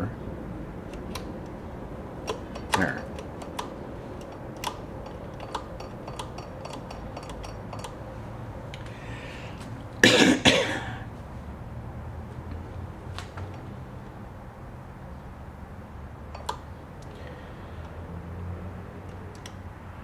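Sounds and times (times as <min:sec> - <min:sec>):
small metal parts clicking: 0:02.2 - 0:08.9
loud cough: 0:10.0 - 0:11.1.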